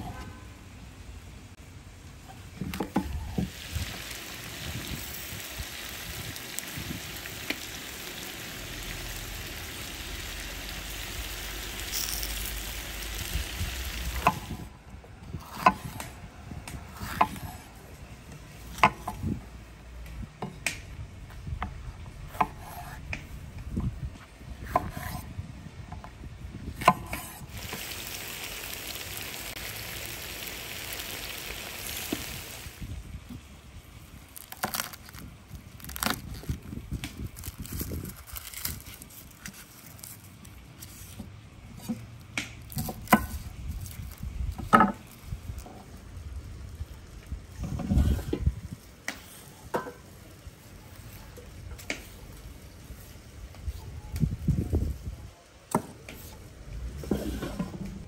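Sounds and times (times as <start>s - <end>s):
food sizzling in a pot: 3.2s - 14.7s, 27.4s - 32.9s.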